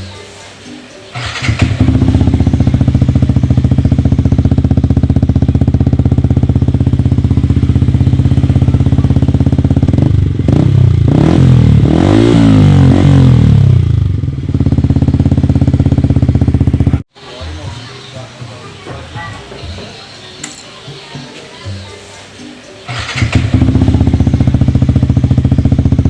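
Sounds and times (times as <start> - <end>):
motorcycle idling and revving: 1.2 - 17.1, 22.9 - 26.0.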